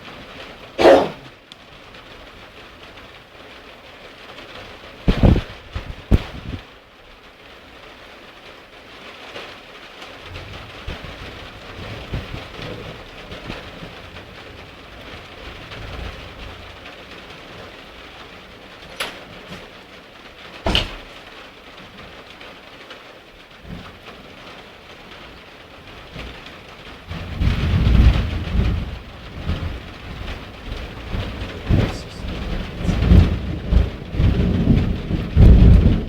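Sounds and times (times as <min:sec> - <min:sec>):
steady rain: 0:00.0 - 0:36.0
low rumbling thunder: 0:10.3 - 0:21.4, 0:25.2 - 0:36.0
loud sharp thunder cracks: 0:27.1 - 0:36.0.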